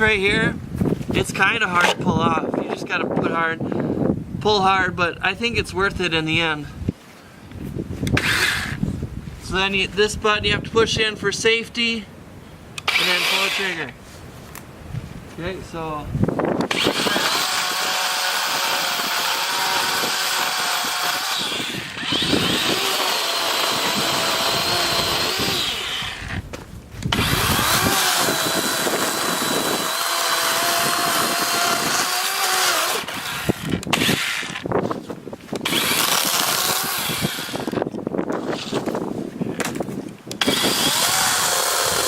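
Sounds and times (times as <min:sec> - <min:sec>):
electric chainsaw cutting wood: 0:08.1 - 0:08.8, 0:12.8 - 0:13.9, 0:16.6 - 0:26.4, 0:27.1 - 0:34.7, 0:35.6 - 0:38.8, 0:40.3 - 0:42.0.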